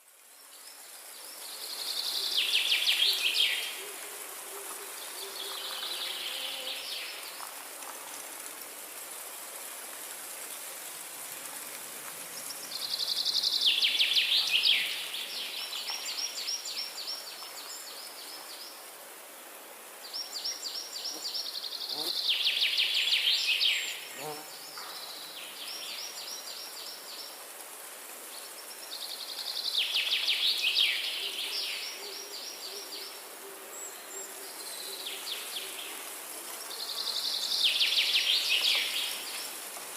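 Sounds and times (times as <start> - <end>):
forest background hiss: 0.0 - 39.9
songbird singing: 0.4 - 7.4.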